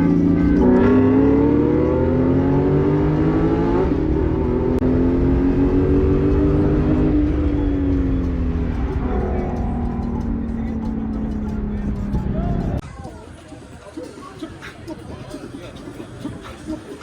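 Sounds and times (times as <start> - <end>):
car engine accelerating: 0.0 - 12.8.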